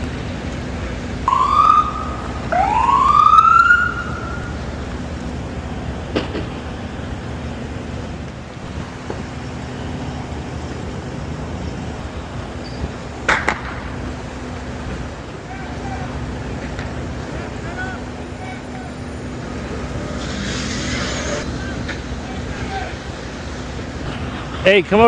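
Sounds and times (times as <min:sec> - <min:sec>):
siren whoop: 0:01.3 - 0:04.6.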